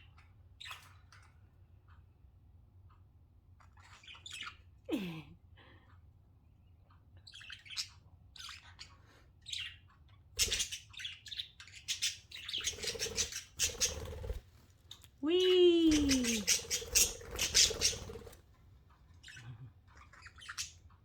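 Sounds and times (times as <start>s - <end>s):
budgerigars chirping and chattering: 7.2s - 14.4s, 15.8s - 18.4s, 19.0s - 21.0s.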